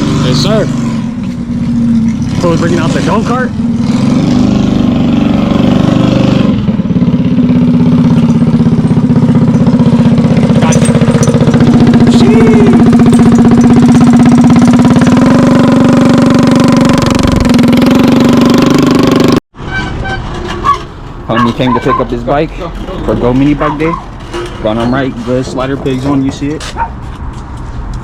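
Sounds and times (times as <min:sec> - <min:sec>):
go-kart engine running: 0:00.0 - 0:19.4.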